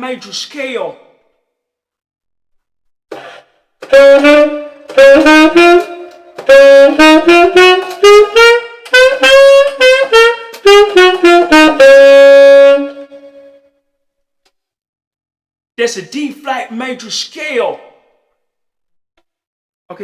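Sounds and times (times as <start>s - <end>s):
tenor saxophone playing a scale: 3.8s - 13.6s.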